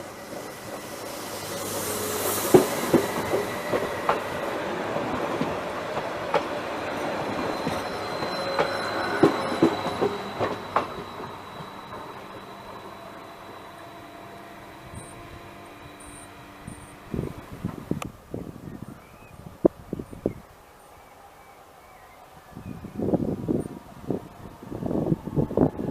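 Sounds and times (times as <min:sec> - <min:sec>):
train rolling noise: 0:00.0 - 0:25.9
wheels clicking over rail joints: 0:02.5 - 0:12.2.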